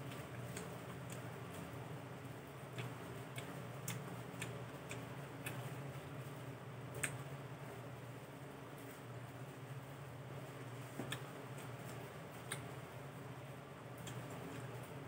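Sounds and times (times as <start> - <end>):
low steady hum: 0.0 - 15.0
chewing and lip-smacking: 2.7 - 6.0, 6.9 - 7.3, 11.0 - 12.7, 14.0 - 14.8.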